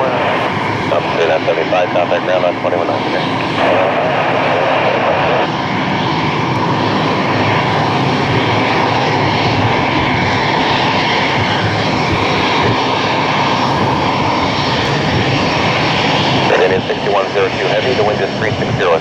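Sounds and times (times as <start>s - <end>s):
jet aircraft engine noise: 0.0s - 19.0s.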